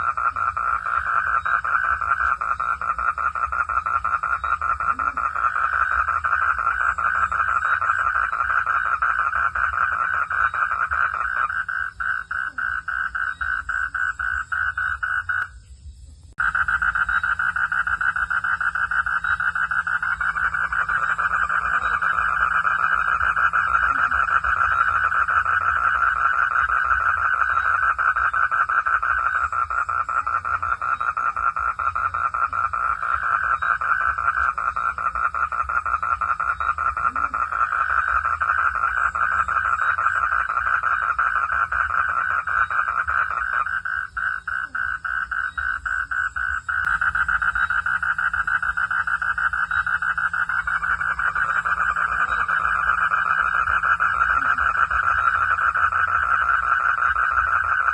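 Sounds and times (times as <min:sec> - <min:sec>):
frogs calling in pulsing notes: 0:00.0 - 0:57.9.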